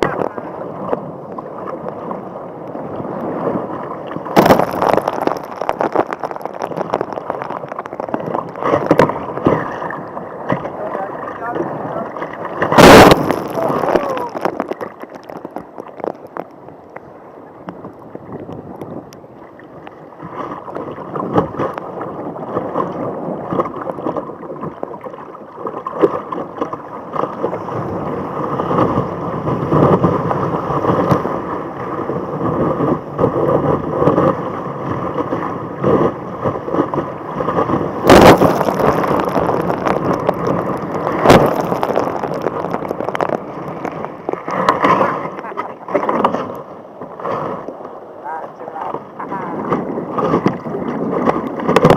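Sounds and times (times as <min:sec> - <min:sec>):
water crashing: 0:00.0 - 0:51.9
water rushing and splashing: 0:00.0 - 0:51.9
wind buffeting microphone: 0:27.4 - 0:51.9.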